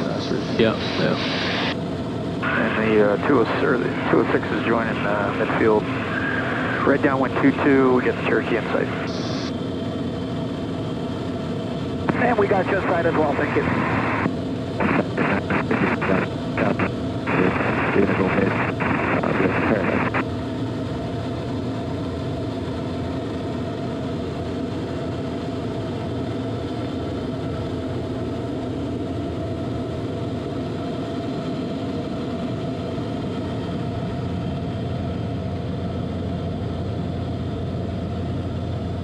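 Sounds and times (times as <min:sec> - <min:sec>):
radio transmission: 0:00.0 - 0:01.8, 0:02.4 - 0:09.6, 0:12.1 - 0:20.3
turbine engine and propeller drone: 0:00.0 - 0:39.0.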